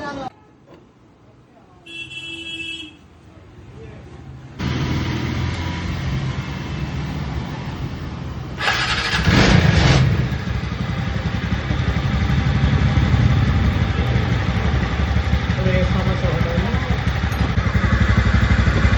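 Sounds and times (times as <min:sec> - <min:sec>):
scooter engine running: 0:08.6 - 0:18.9.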